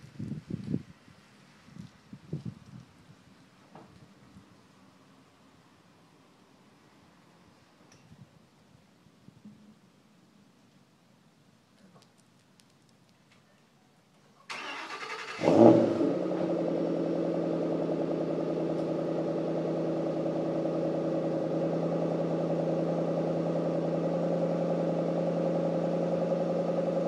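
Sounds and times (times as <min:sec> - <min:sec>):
car engine starting and idling: 0:14.5 - 0:27.0.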